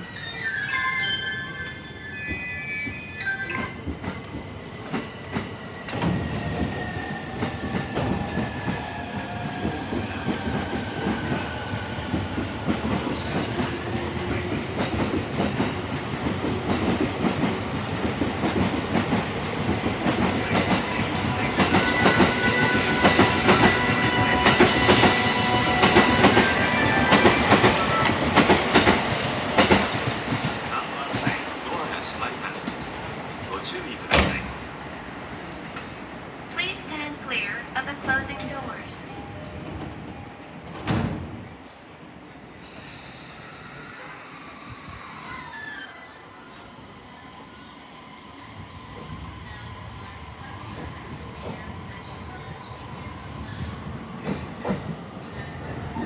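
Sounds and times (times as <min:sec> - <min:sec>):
train wheels rumbling and clattering: 0:03.6 - 0:36.3, 0:46.1 - 0:56.0.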